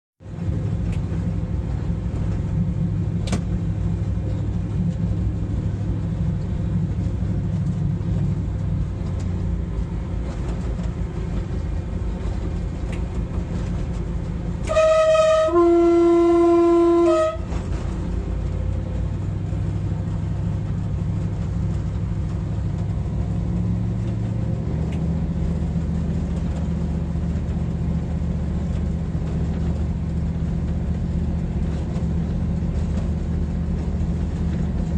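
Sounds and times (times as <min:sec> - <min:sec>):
train cab drone: 0:00.2 - 0:34.9
train horn chord: 0:14.6 - 0:17.8.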